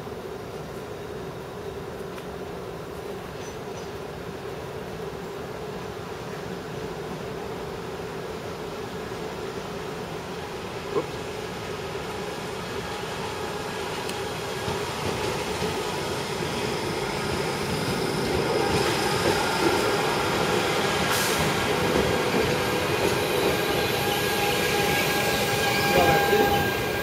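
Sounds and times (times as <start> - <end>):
train wheels rumbling on rail: 8.7 - 27.0.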